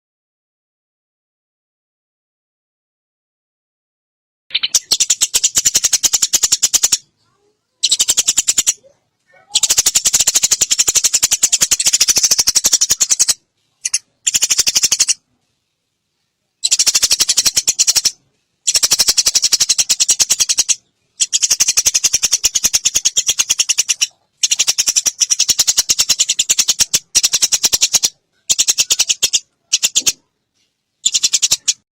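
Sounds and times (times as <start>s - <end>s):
sparrow chattering: 4.5s - 15.2s, 16.6s - 30.3s, 31.0s - 31.8s.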